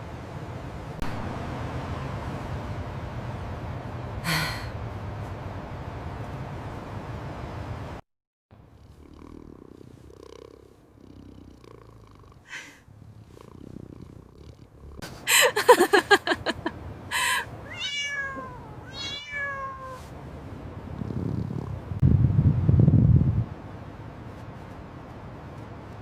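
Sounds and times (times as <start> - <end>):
kitten mewing: 17.1 - 20.1.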